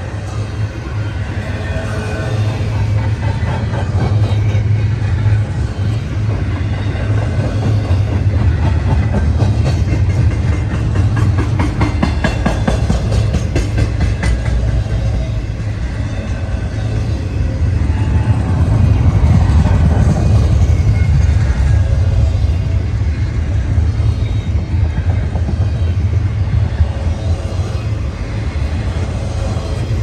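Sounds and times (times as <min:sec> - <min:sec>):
freight train rumble: 0:00.0 - 0:30.0
wheels clicking over rail joints: 0:01.5 - 0:16.0.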